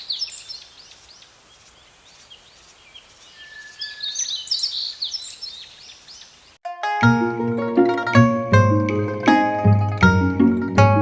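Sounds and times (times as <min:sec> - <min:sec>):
birds chirping and singing: 0:00.0 - 0:06.6
faint steady hiss: 0:00.0 - 0:06.6.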